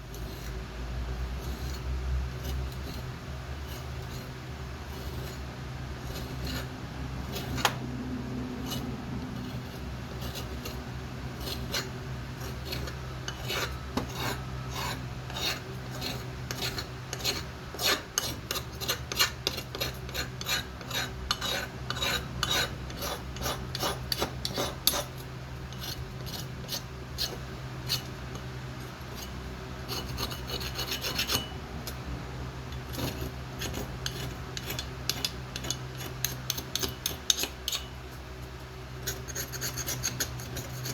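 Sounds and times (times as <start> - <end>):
metal rasping scrapes: 0.0 - 31.6, 32.7 - 40.9
steady low hum: 0.0 - 40.9.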